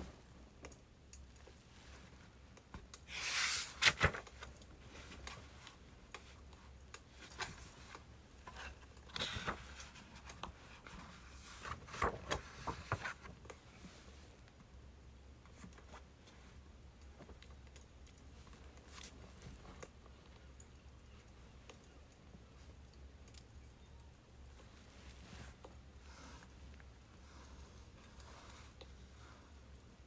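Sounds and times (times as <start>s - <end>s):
soft rustle: 24.5s - 30.0s.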